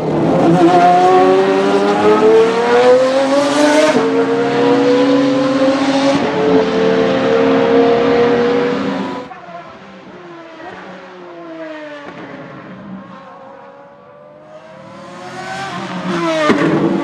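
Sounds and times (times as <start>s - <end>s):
car engine accelerating hard: 0.0s - 13.2s.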